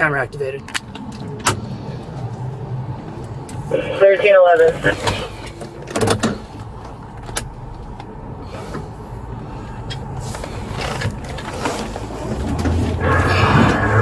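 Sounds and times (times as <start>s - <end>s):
car engine running steadily: 1.1s - 14.0s.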